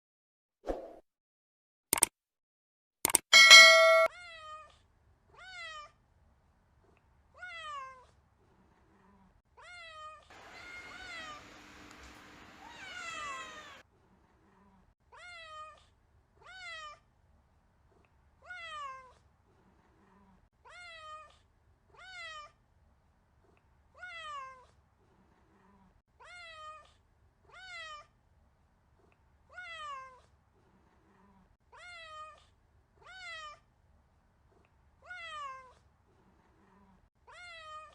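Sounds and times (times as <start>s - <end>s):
kitten meowing: 9.9s - 11.5s, 12.6s - 13.8s.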